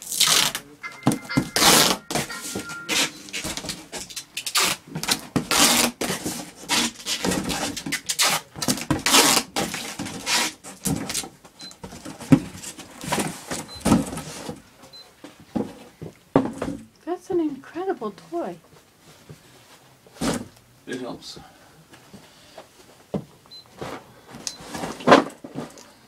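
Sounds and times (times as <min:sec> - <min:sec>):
short high beeps: 0:00.8 - 0:03.4
rustles and knocks of handling: 0:18.6 - 0:26.0.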